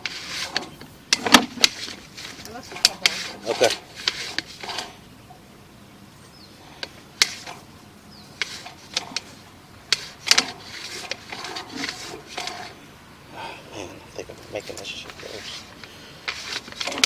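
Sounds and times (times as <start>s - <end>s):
cable clicking and knocking: 0.0s - 5.0s, 6.8s - 7.7s, 8.3s - 12.8s, 14.4s - 17.0s.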